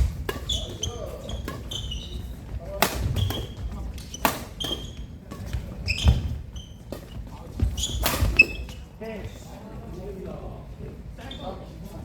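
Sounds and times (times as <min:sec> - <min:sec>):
court shoes squeaking: 0:00.0 - 0:09.4.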